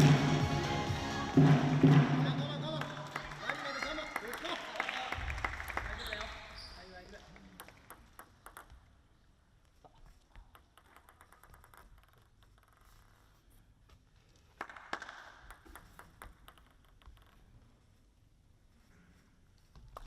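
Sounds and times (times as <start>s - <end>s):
table tennis ball clicks: 7.5s - 8.9s, 10.3s - 13.0s, 15.1s - 17.5s.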